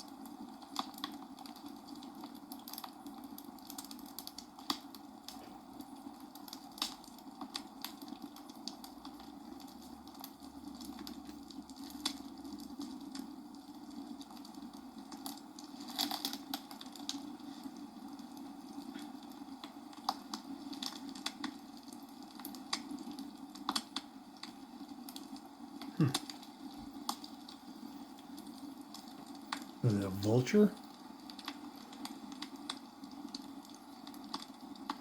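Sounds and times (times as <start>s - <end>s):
sharp clicks and crackles: 0.0s - 29.8s, 30.8s - 35.0s.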